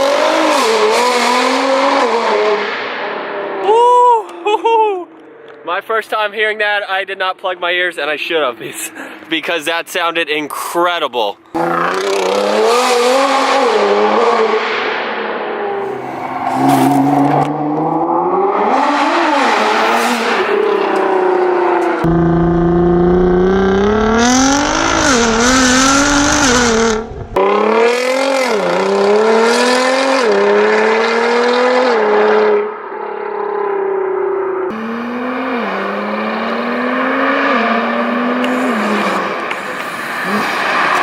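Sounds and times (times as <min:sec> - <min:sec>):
car engine accelerating: 0:11.5 - 0:32.6, 0:33.6 - 0:41.0.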